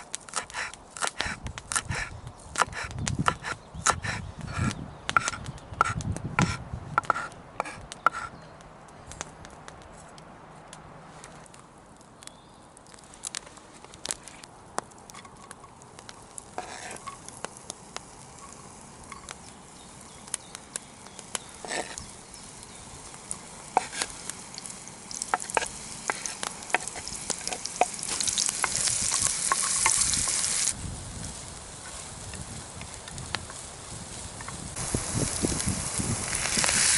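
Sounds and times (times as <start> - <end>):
loud hissing sizzle: 15.8 - 36.9
utensil scraping a pan: 16.5 - 17.2, 21.6 - 22.1, 23.8 - 24.1, 25.3 - 30.4
food frying in a pan: 21.4 - 33.9, 34.5 - 36.9.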